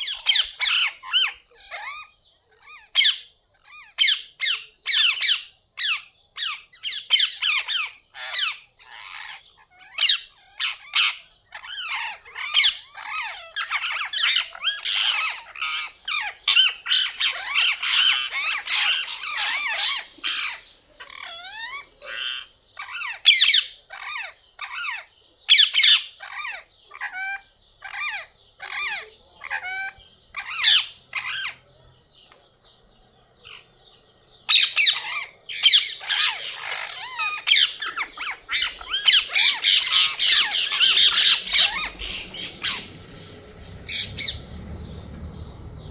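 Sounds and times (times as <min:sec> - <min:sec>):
parrots squawking: 0:00.0 - 0:31.6, 0:33.4 - 0:45.9
rising whistled calls: 0:34.5 - 0:45.9.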